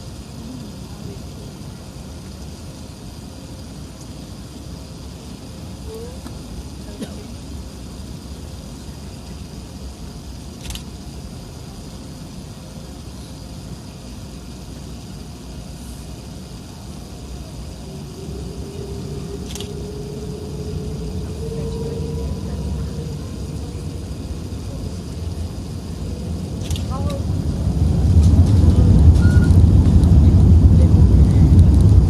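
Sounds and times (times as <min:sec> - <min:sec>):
airplane cabin engine rumble: 0:00.0 - 0:32.0
faint rising whine: 0:11.2 - 0:32.0.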